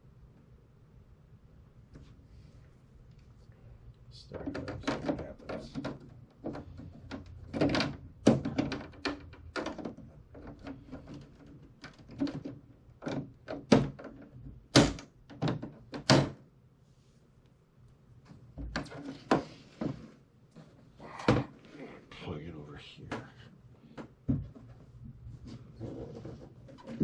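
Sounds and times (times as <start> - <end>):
hard plastic knocks and thunks: 4.4 - 16.4, 23.9 - 27.0.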